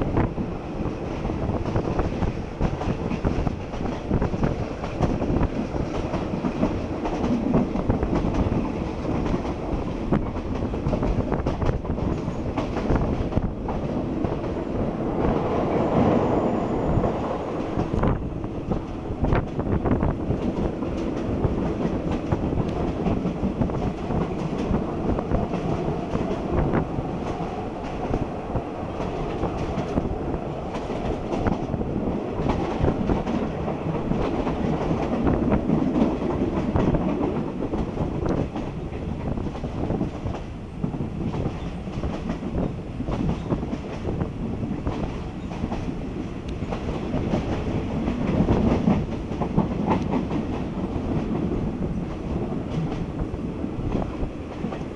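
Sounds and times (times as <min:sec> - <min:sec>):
train wheels rumbling: 0:00.0 - 0:54.9.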